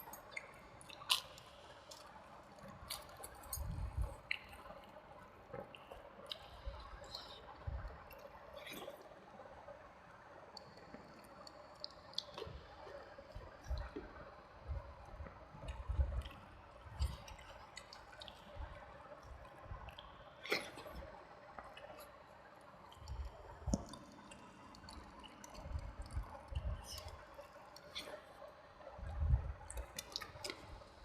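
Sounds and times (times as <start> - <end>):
wet chewing: 0.3 - 4.7.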